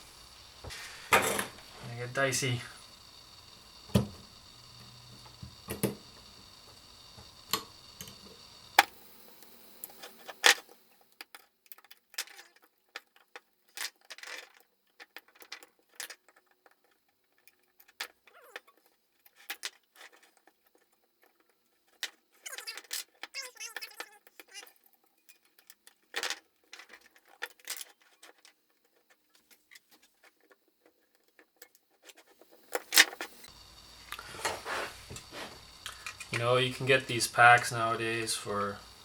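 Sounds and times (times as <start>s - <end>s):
low background hum: 0.0s - 11.0s
plastic parts clicking and rattling: 9.8s - 33.3s.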